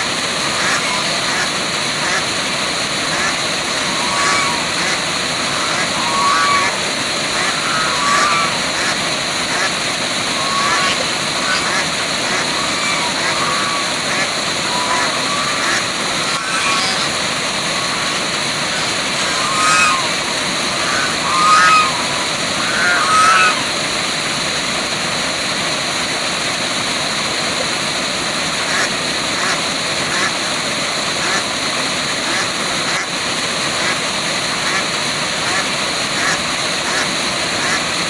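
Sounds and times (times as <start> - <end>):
waterfall rushing: 0.0 - 38.0
honking bird calls: 3.1 - 23.8.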